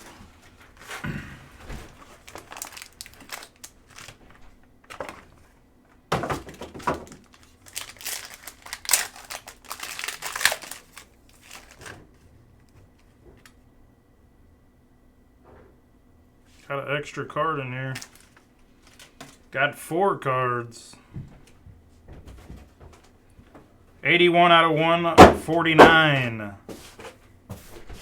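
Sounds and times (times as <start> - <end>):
plastic wrapping crinkling: 0.0 - 5.6, 6.4 - 12.2, 17.9 - 19.5.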